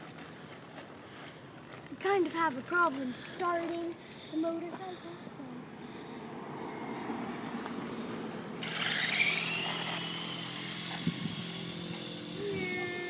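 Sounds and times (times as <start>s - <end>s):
scooter motor whining: 4.2s - 13.0s.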